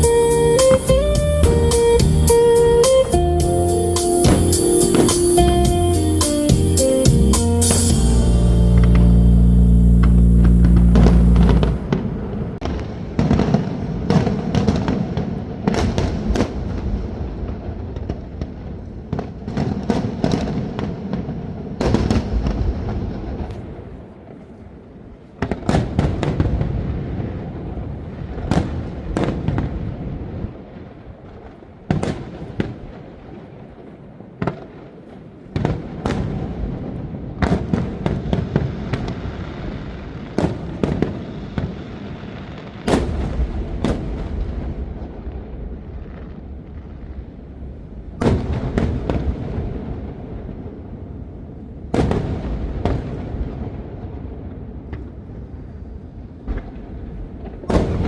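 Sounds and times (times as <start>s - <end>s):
fireworks crackling: 0.0s - 47.5s
fireworks shell bursts: 4.0s - 5.6s
low rumble: 5.4s - 12.6s.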